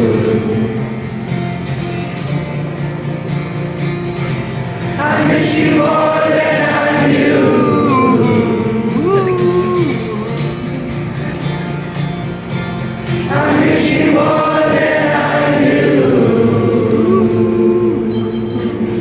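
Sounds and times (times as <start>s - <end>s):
long wordless sung notes: 0.0s - 2.2s, 4.6s - 11.3s, 13.2s - 19.0s.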